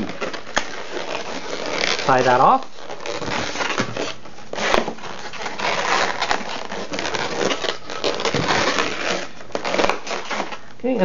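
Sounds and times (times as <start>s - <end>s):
balloons rubbing and squeaking: 0.0s - 11.0s.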